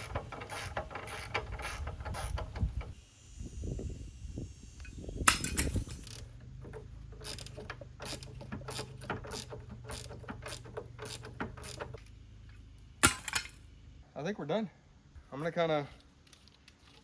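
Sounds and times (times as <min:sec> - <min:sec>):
ratchet wrench clicking: 0:07.2 - 0:12.0
sharp metal clank: 0:13.0 - 0:13.6.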